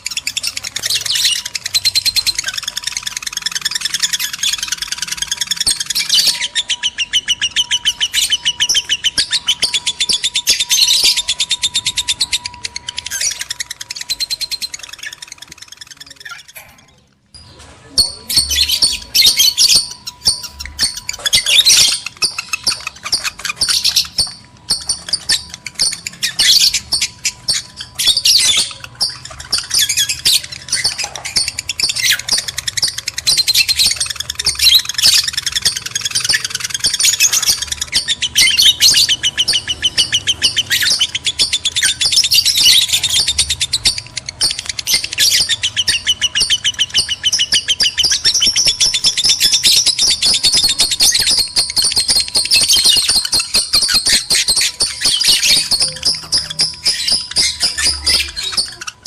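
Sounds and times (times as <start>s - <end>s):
lovebirds chirping and squawking: 0.0s - 59.0s.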